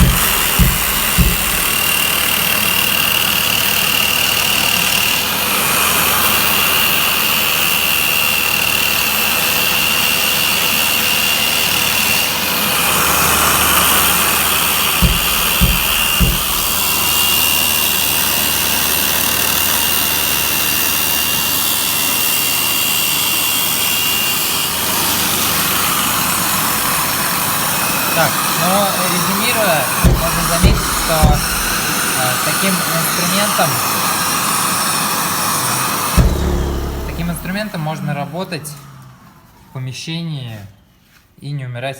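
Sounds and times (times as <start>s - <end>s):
short low thumps: 0.0s - 2.1s, 15.0s - 17.2s, 30.0s - 31.9s, 36.2s - 38.0s.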